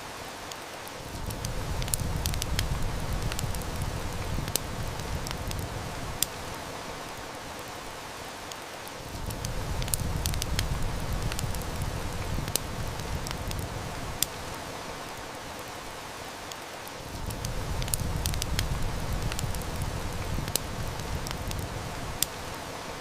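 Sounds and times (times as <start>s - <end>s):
heavy rain hiss: 0.0s - 23.0s
wood fire crackling and popping: 0.5s - 7.3s, 8.5s - 15.6s, 16.5s - 22.8s.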